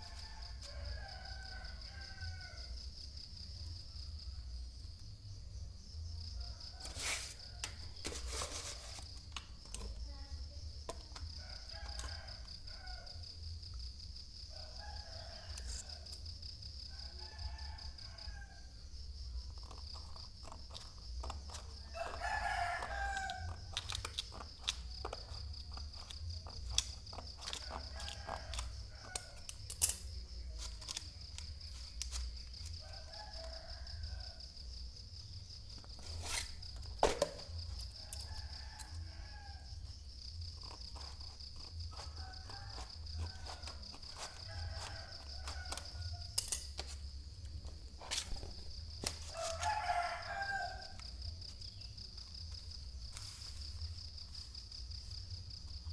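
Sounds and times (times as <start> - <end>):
rooster crowing: 0.0 - 2.8, 11.4 - 13.3, 14.5 - 16.2, 16.9 - 18.8, 21.8 - 23.7, 27.6 - 29.5, 32.5 - 34.6, 37.9 - 40.0, 41.9 - 46.9, 48.4 - 51.9
high insect trill: 0.0 - 55.9.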